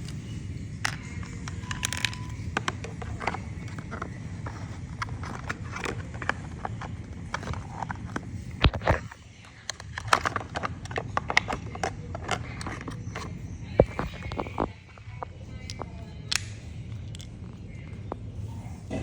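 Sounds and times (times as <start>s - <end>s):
plastic toy pieces clicking: 0.8s - 7.6s.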